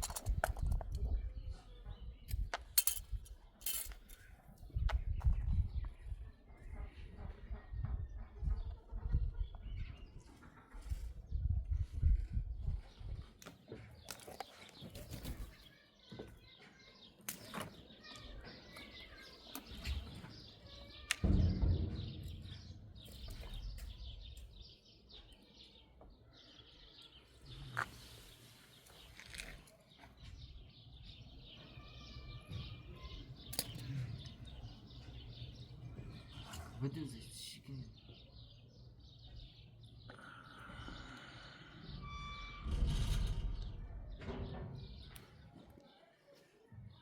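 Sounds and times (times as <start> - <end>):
handling clicks and knocks: 0.0 - 1.2, 2.3 - 4.3
heavy low thump: 21.2 - 24.2.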